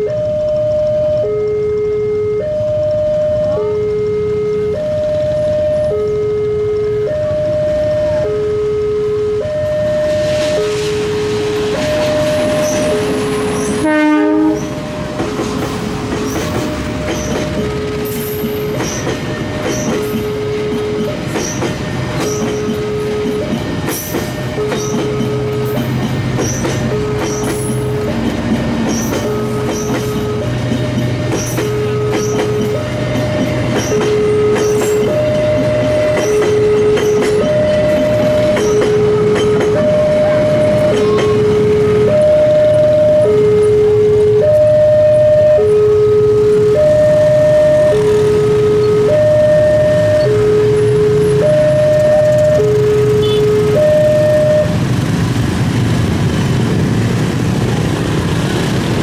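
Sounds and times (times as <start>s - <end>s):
level-crossing alarm two-tone chime: 0.0s - 15.2s, 24.3s - 28.3s, 28.9s - 54.8s
train horn blast: 13.6s - 14.7s, 53.0s - 53.8s
train wheels clattering over rail joints: 14.4s - 42.1s.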